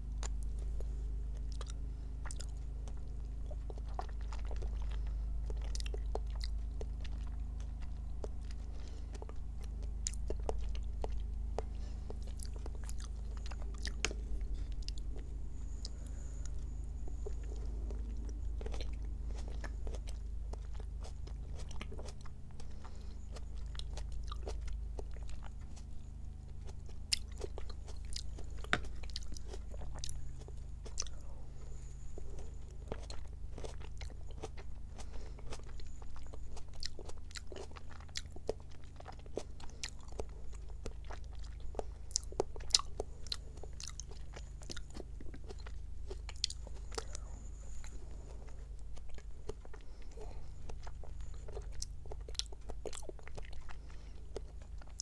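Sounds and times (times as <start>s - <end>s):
wet squishy chewing with clicks: 0.0s - 55.0s.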